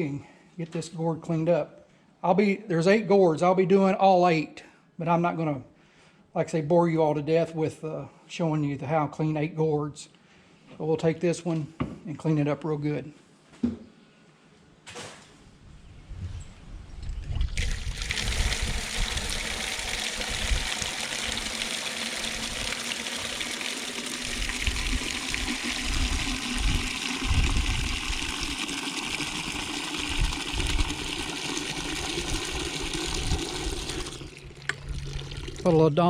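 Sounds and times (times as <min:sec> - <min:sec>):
tap water filling a container: 0:17.3 - 0:35.8.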